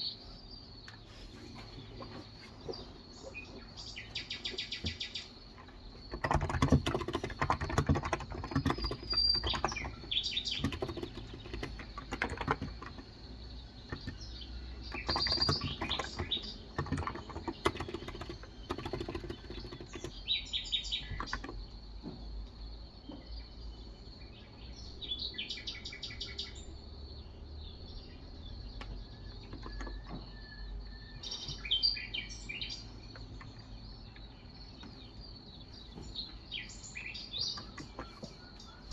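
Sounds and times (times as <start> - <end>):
typing on a keyboard: 5.6 - 20.3, 21.0 - 21.6, 29.4 - 30.2.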